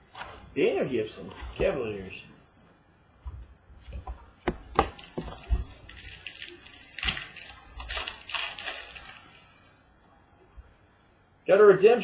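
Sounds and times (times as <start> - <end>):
wrapper crinkling and rustling: 4.8 - 9.6.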